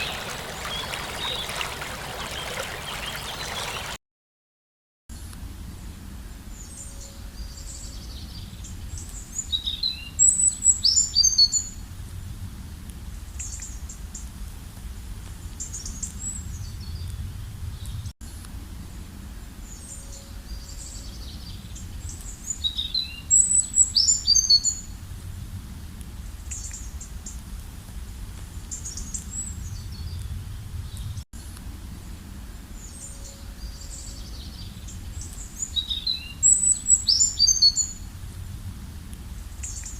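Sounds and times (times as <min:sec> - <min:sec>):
small birds chirping: 0:00.0 - 0:04.0
steady low rumble: 0:38.0 - 0:39.9.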